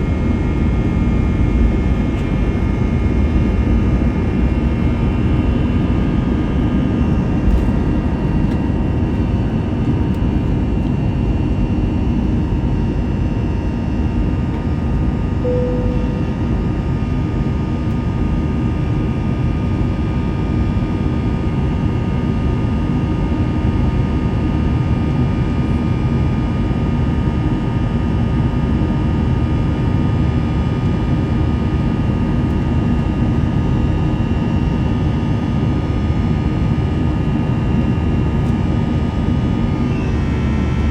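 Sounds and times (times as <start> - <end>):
jet cabin engine rumble: 0.0 - 17.9
short single tone: 15.4 - 16.8, 39.8 - 40.9.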